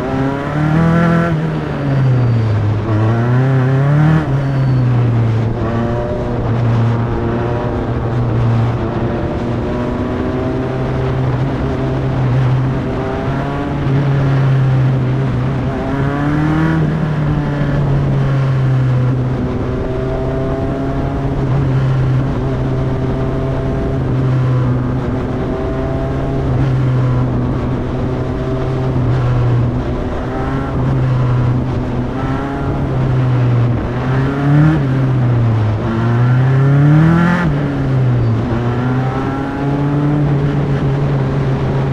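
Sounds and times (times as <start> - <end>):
race car engine running: 0.0 - 41.9.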